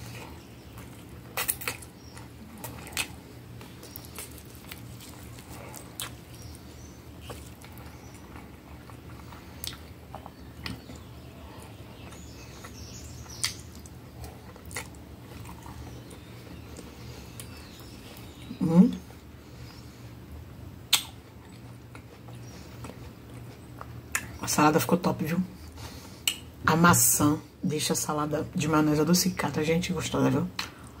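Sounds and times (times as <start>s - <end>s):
person chewing: 0.0s - 18.5s, 20.9s - 24.3s.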